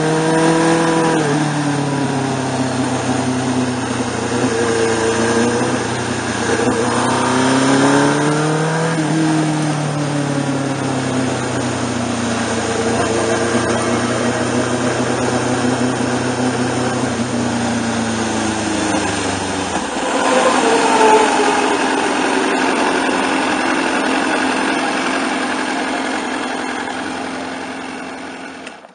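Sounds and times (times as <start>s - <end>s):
motorcycle engine: 0.0s - 28.9s
wind rush: 17.7s - 24.8s.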